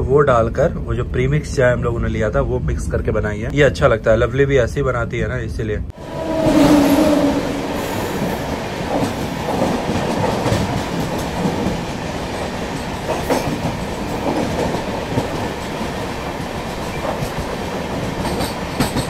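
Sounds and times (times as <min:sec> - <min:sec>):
train rail rumble: 0:05.9 - 0:19.0
wheels clacking over rail joints: 0:08.2 - 0:19.0.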